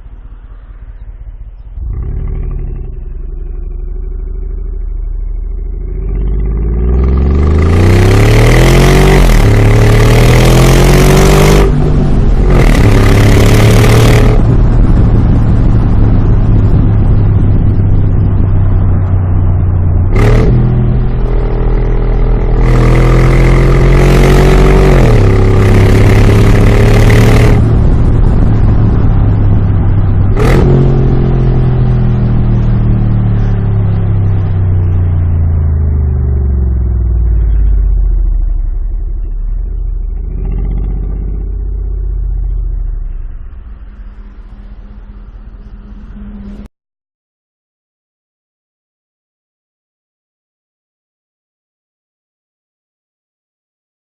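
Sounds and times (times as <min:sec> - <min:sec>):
engine throttle blips: 0:01.4 - 0:46.7
engine revving through exhaust: 0:01.8 - 0:15.6, 0:20.0 - 0:46.6.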